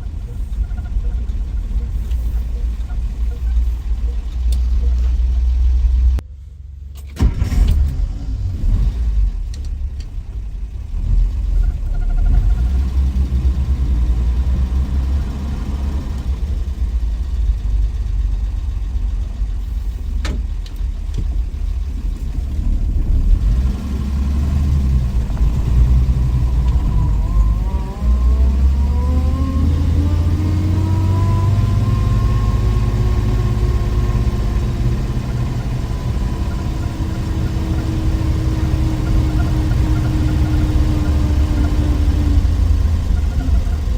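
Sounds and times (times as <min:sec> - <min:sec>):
car engine rumbling: 0:00.0 - 0:43.9.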